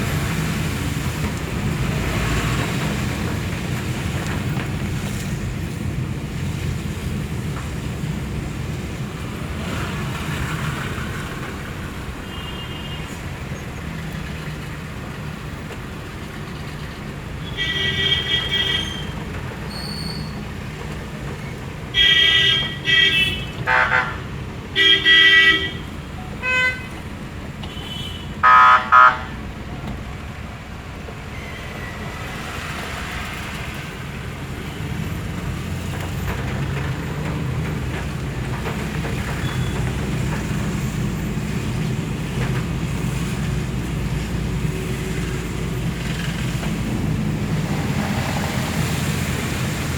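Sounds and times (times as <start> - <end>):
low rumble of traffic engines: 0.0 - 49.9
vehicle horns honking: 12.2 - 13.2, 17.4 - 19.2, 21.9 - 27.0, 27.6 - 29.4.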